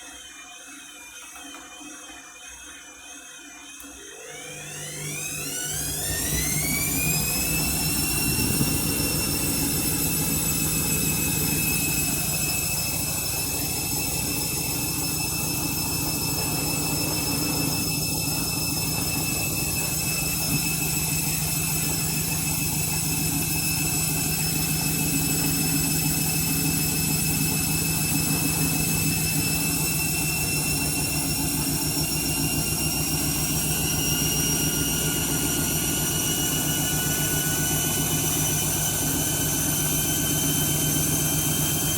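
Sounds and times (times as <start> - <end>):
washing machine motor whine: 0.0 - 41.9
drum rumble: 6.9 - 23.0.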